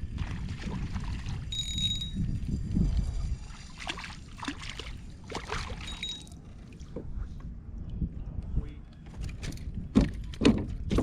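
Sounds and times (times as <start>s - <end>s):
water sloshing and splashing: 0.0s - 7.2s
steady low rumble: 6.4s - 9.9s.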